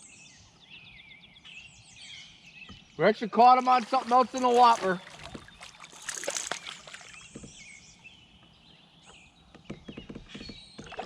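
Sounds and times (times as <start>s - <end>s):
water sloshing around a kayak: 3.4s - 8.6s, 10.4s - 11.0s
knocks against a hull: 4.6s - 7.8s, 9.5s - 11.0s.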